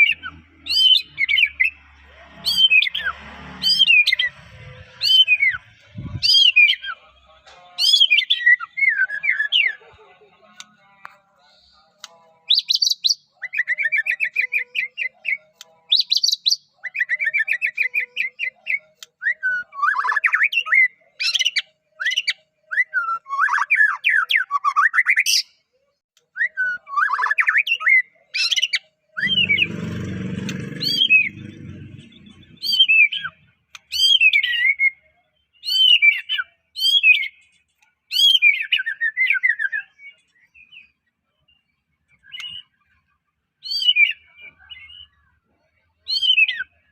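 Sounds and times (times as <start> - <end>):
bird singing trills and whistles: 0.0 - 1.8, 5.0 - 7.0, 7.8 - 9.8, 12.5 - 25.6, 32.1 - 43.0, 43.6 - 45.2, 46.1 - 46.8.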